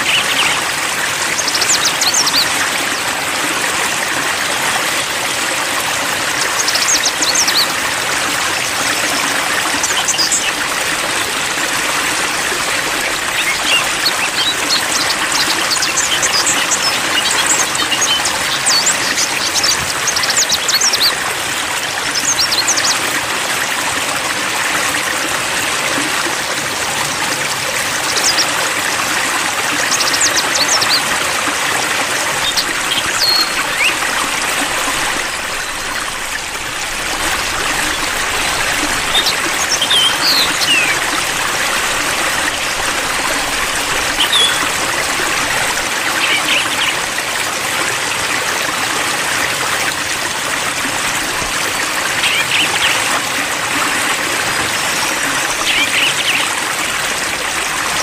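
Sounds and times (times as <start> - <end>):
water trickling and splashing: 0.0 - 58.0
faint high bird chirps: 44.2 - 44.6.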